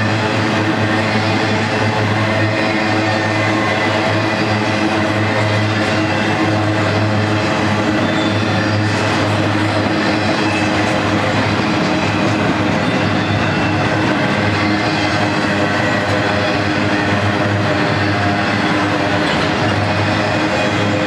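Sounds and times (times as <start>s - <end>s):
steel wheels rolling on rails: 0.0s - 21.0s.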